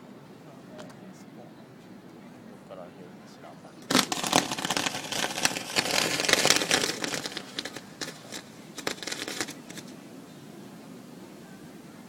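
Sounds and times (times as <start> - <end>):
fireworks crackling and popping: 3.8 - 10.0.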